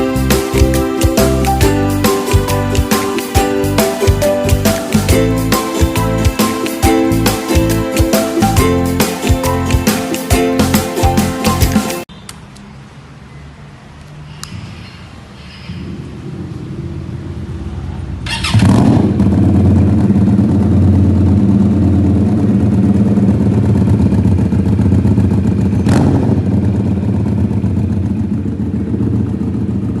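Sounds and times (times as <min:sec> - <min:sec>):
motorcycle engine running: 0:16.2 - 0:30.0.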